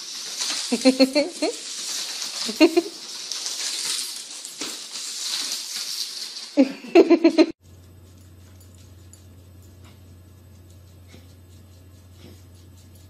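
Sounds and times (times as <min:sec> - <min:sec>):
low hum: 0:07.6 - 0:13.0.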